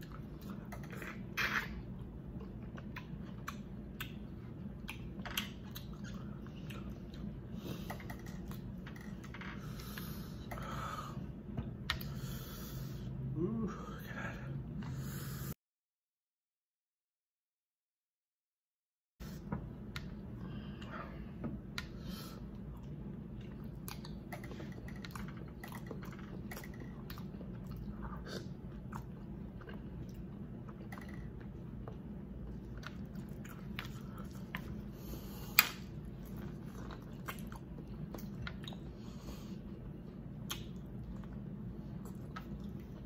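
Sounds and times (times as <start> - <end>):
person chewing food: 0.0 - 10.7, 21.8 - 43.0
steady low hum: 0.0 - 15.6, 19.2 - 43.0.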